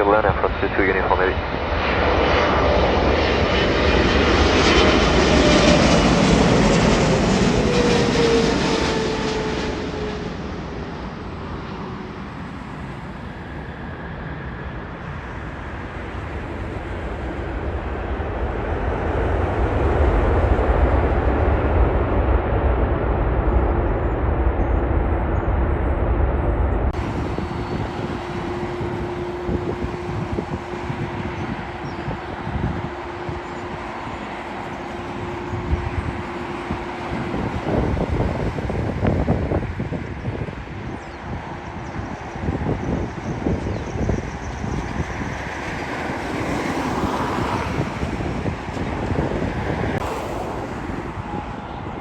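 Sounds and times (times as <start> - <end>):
deep jet rumble: 0.0 - 52.0
jet engines passing with whine: 0.0 - 52.0.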